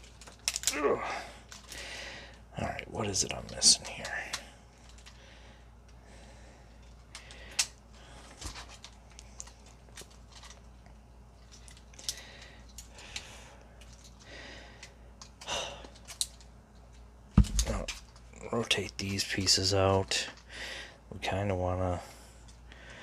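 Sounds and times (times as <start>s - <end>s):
plastic toy clicking and scraping: 0.0s - 0.7s, 3.3s - 5.2s.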